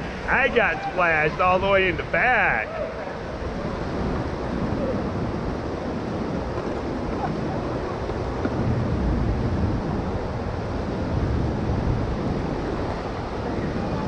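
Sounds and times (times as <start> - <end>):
rushing river whitewater: 0.0 - 14.0.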